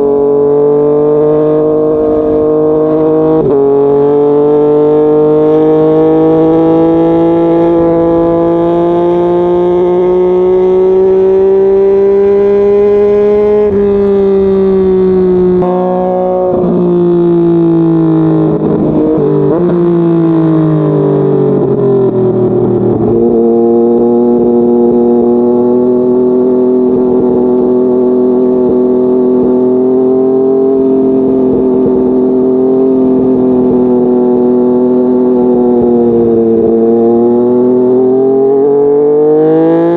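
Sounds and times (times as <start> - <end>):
motorcycle engine running: 0.0 - 39.1.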